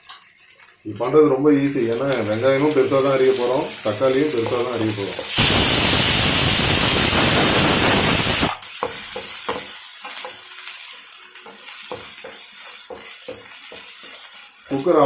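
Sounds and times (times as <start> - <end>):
onions and tomatoes frying in pan: 0.0 - 15.0
pressure cooker whistling: 5.3 - 8.6.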